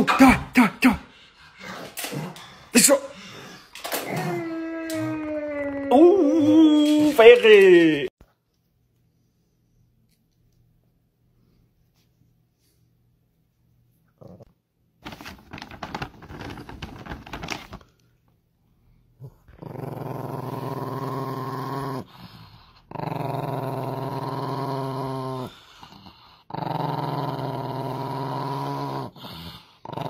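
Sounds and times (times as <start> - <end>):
dog growling: 1.1 - 7.1, 14.2 - 14.5, 19.2 - 30.0
rustling: 15.0 - 18.0.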